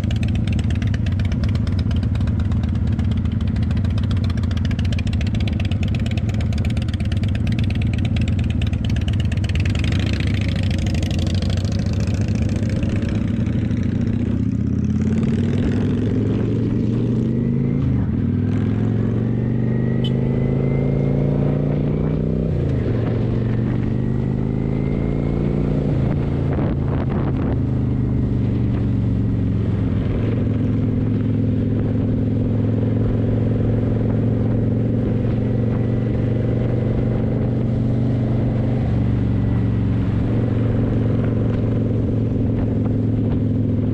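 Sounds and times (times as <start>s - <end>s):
motorcycle engine: 0.0s - 43.9s
wind noise on microphone: 25.0s - 43.9s.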